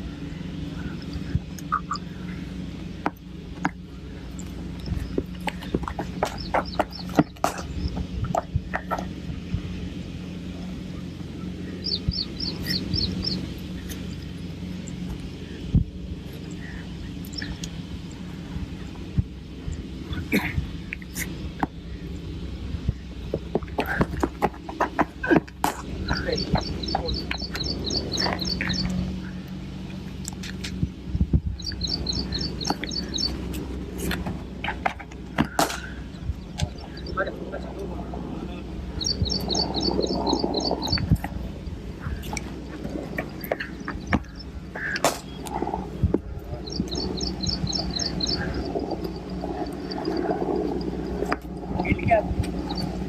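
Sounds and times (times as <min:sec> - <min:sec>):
low hum: 0:00.0 - 0:53.0
steady background noise: 0:00.0 - 0:53.0
bird chirping: 0:00.1 - 0:02.5, 0:03.8 - 0:09.1, 0:10.9 - 0:15.6, 0:16.4 - 0:18.9, 0:26.0 - 0:29.6, 0:30.3 - 0:34.7, 0:35.4 - 0:37.8, 0:38.4 - 0:53.0.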